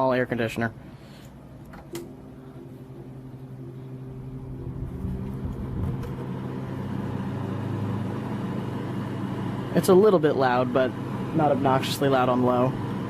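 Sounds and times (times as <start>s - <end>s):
air conditioner humming: 0.0s - 13.0s
air conditioner switch click: 1.6s - 2.2s.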